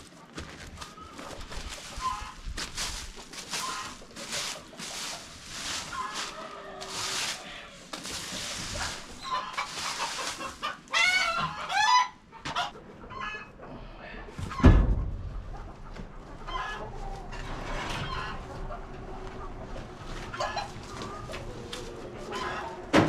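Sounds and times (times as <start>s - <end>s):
chickens clucking and squawking: 0.1s - 23.0s
loud thump: 14.6s - 15.3s.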